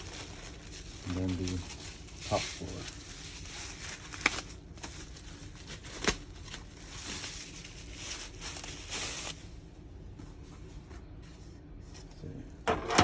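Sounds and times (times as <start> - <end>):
packaging rustling and crinkling: 0.0 - 9.6.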